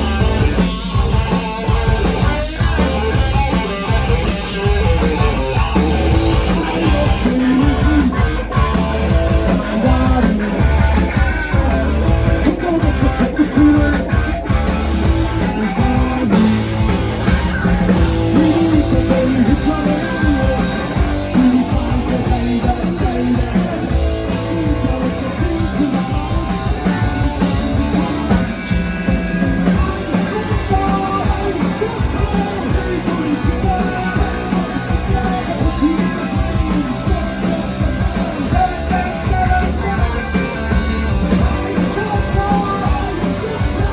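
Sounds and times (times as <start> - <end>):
bass guitar: 0.0 - 43.9
distorted electric guitars: 0.0 - 43.9
drums: 0.0 - 43.9
person singing: 3.0 - 8.7, 9.3 - 16.6, 17.4 - 28.6, 29.6 - 43.9.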